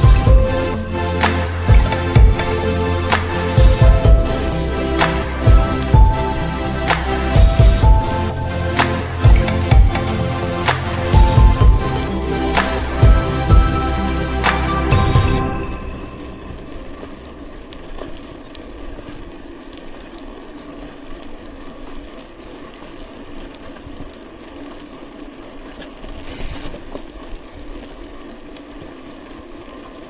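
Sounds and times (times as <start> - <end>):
bicycle rolling and wind noise: 0.0 - 30.0
short burst of hiss: 26.2 - 26.9.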